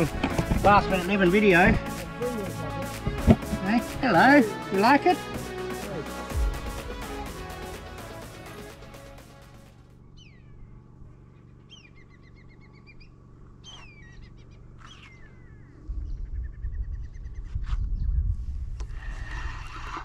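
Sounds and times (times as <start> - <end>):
birds whistling: 10.0 - 10.8, 11.4 - 18.1
wind buffeting microphone: 15.7 - 20.0.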